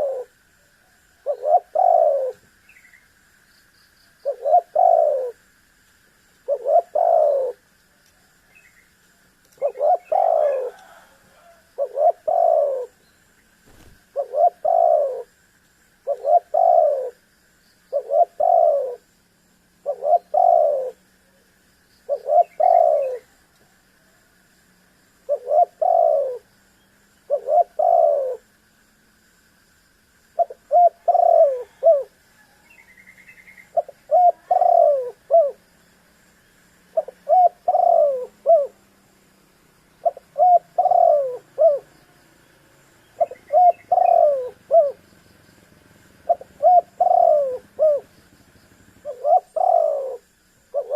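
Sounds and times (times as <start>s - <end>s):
dove cooing: 0.0s - 2.5s, 4.2s - 5.4s, 6.5s - 7.6s, 9.6s - 13.0s, 13.7s - 15.3s, 16.0s - 17.2s, 17.9s - 19.1s, 19.8s - 21.4s, 22.1s - 23.4s, 25.2s - 26.5s, 27.3s - 28.5s, 30.4s - 35.7s, 36.9s - 38.8s, 40.0s - 41.9s, 43.0s - 50.9s.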